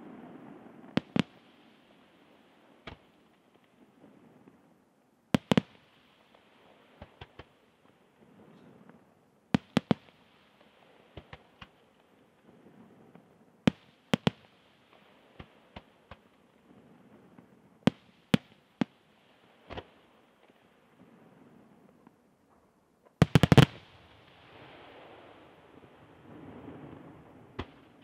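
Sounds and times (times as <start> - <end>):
faint firework reports: 0.0 - 28.0
firework shells bursting: 0.8 - 4.0, 5.4 - 8.0, 9.6 - 11.9, 13.1 - 16.5, 17.2 - 20.6, 22.5 - 24.7.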